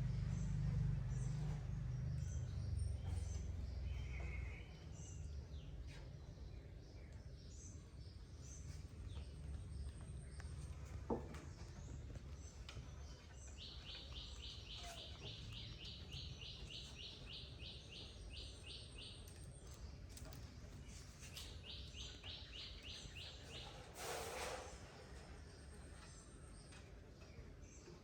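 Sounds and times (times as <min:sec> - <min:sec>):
low steady hum: 0:00.0 - 0:13.8
bird chirping: 0:00.3 - 0:23.8.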